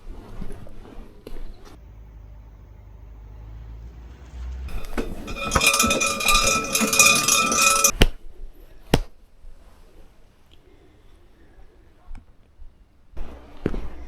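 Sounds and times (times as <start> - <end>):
metallic jingling and ringing: 4.7 - 7.9.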